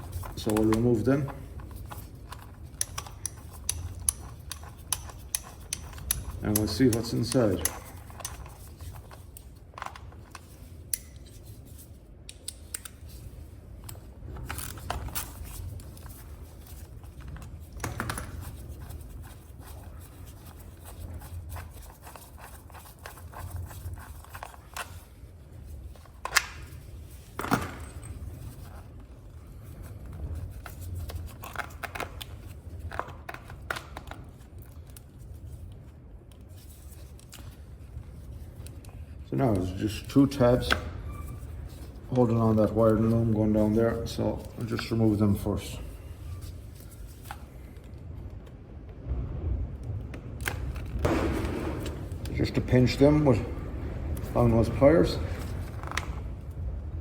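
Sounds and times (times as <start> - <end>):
metal tools clicking and scraping: 0.0 - 11.4
steady low hum: 0.0 - 57.0.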